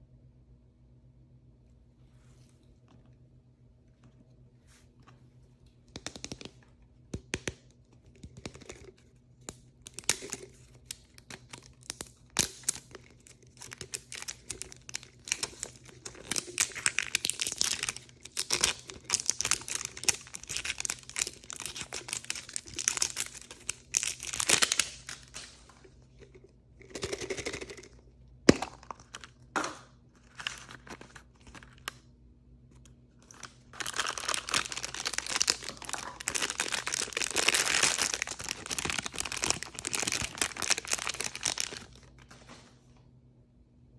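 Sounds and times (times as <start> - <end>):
plastic packaging crinkling: 9.8 - 26.3, 30.2 - 32.0, 33.2 - 42.3.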